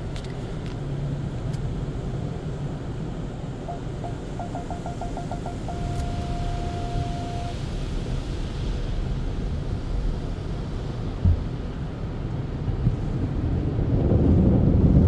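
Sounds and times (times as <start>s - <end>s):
car wash equipment rumbling: 0.0s - 15.0s
electronic beeps: 3.7s - 7.6s.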